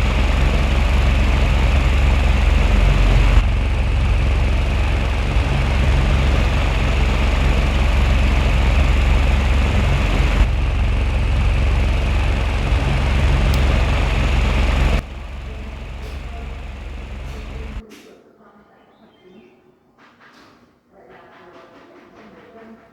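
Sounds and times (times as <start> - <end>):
electric fan motor humming: 0.0 - 17.8
rush of fan blades: 0.0 - 17.8.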